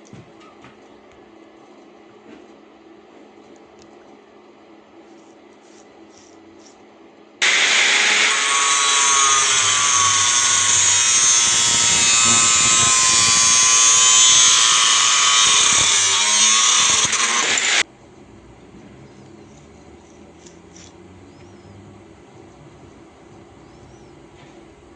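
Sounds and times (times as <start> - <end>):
power tool whining on metal: 7.4 - 17.9.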